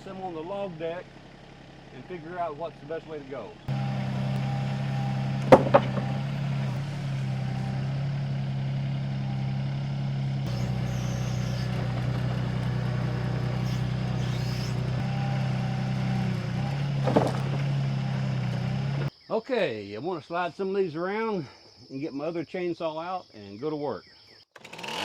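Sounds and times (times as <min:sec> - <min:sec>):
excavator diesel engine running: 0:00.0 - 0:19.1
sharp knock of logs: 0:04.1 - 0:06.6, 0:16.0 - 0:17.9.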